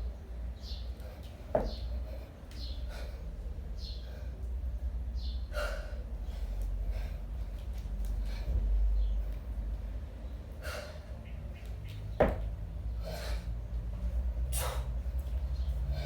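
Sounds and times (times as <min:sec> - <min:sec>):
steady low hum: 0:00.0 - 0:16.0
heavy forceful breathing: 0:01.0 - 0:04.6, 0:05.4 - 0:11.2, 0:12.8 - 0:16.0.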